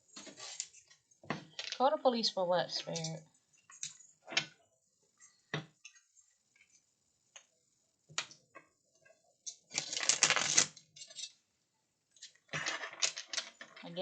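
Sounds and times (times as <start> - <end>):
cards shuffling: 9.8 - 10.7.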